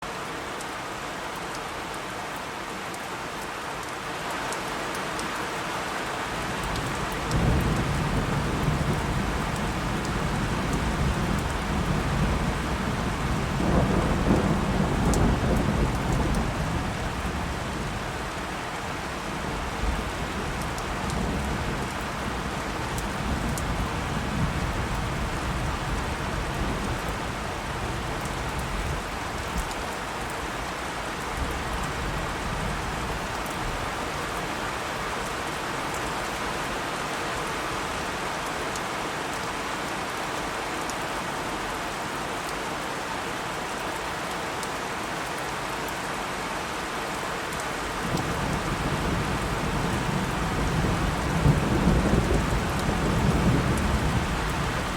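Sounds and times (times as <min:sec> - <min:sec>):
steady rain falling: 0:00.0 - 0:54.9
low thunder rumbling: 0:07.3 - 0:18.0, 0:48.1 - 0:54.9.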